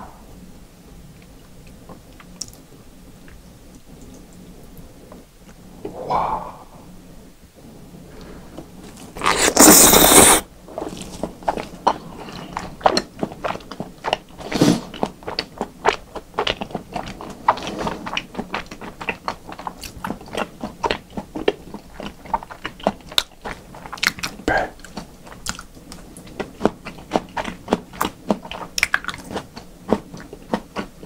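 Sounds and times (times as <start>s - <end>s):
wet chewing with mouth clicks: 8.8s - 31.0s.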